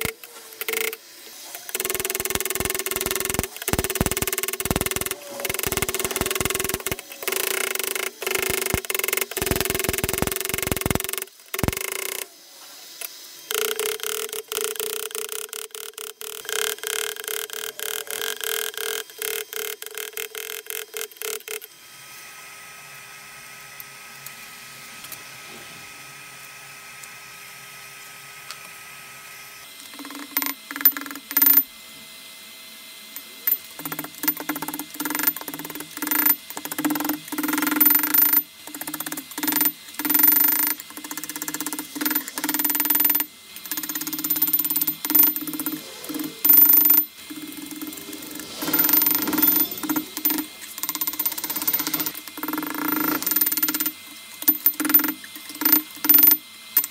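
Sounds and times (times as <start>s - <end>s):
forge blower motor hum: 16.0s - 46.5s, 47.1s - 56.8s
louder hum: 33.4s - 52.4s.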